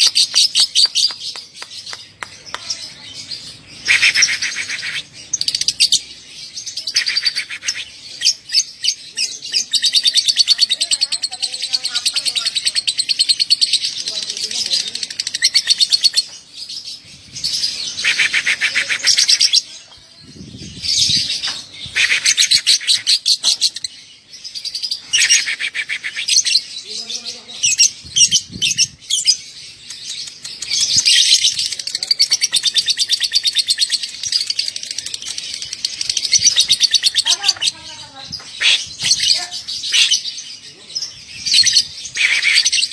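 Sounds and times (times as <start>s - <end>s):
lovebird chattering trills: 3.8s - 6.0s, 6.8s - 16.3s, 17.4s - 19.8s, 20.4s - 23.9s, 24.9s - 26.7s, 27.6s - 40.4s, 41.2s - 42.9s.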